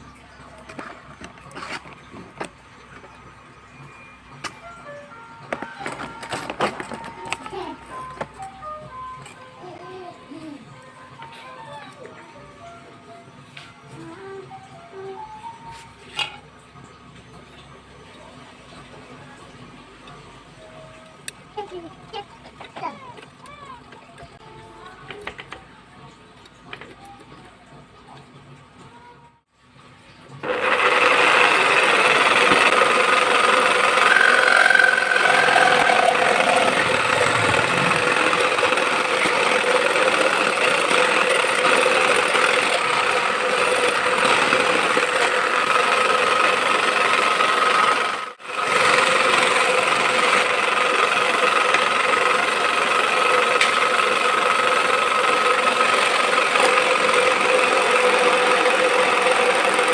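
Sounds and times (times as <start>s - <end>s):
small power tool running: 30.4s - 59.9s.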